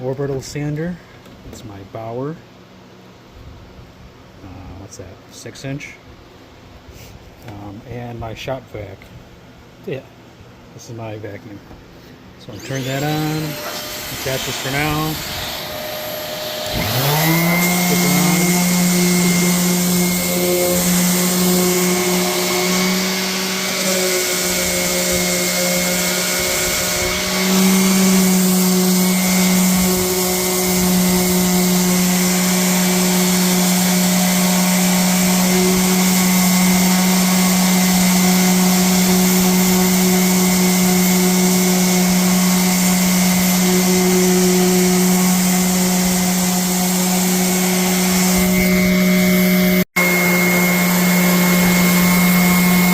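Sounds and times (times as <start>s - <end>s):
shop vacuum hissing: 12.0s - 52.9s
orbital sander on wood: 12.5s - 52.9s.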